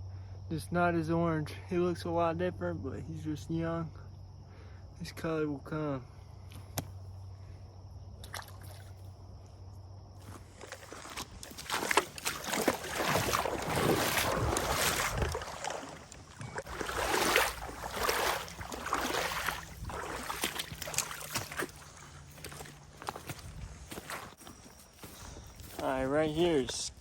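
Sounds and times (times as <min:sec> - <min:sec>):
footsteps splashing through water: 0:08.2 - 0:09.0, 0:10.2 - 0:27.0.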